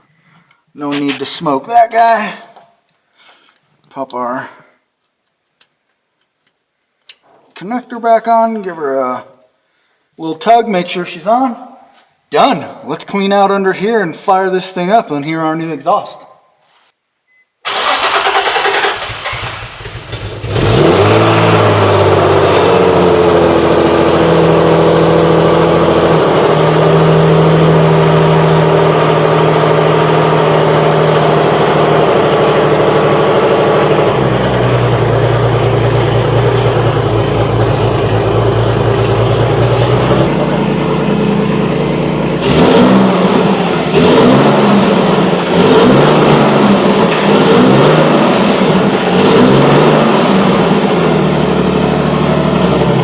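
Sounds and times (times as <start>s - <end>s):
car engine idling: 17.7s - 49.2s, 49.9s - 53.0s
engine throttle revs: 17.7s - 53.0s.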